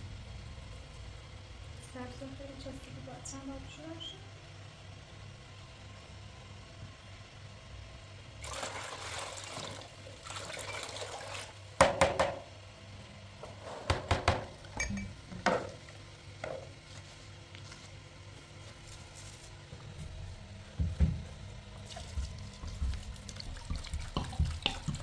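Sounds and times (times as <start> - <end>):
water pouring: 8.4 - 11.7, 21.8 - 25.0
kitchenware clinking and knocking: 13.8 - 15.8.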